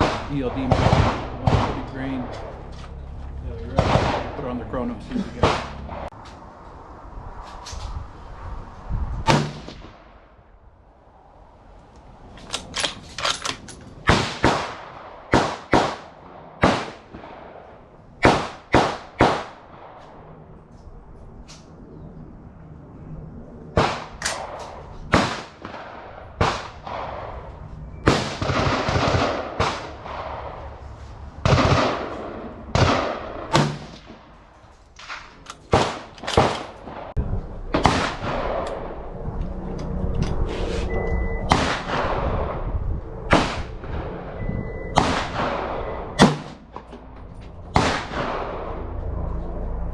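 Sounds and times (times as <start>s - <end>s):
rifle gunshots with echo: 0.0s - 2.5s, 3.7s - 4.8s, 5.4s - 6.1s, 14.0s - 20.2s, 23.8s - 30.7s, 31.4s - 34.4s, 35.0s - 39.0s, 41.5s - 42.6s, 43.3s - 46.7s, 47.7s - 48.8s.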